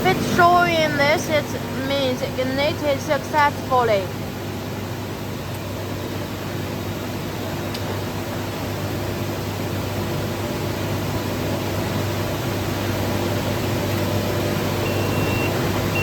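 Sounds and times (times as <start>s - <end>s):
furnace blower and burners rushing: 0.0s - 16.0s
short high beep: 14.9s - 16.0s.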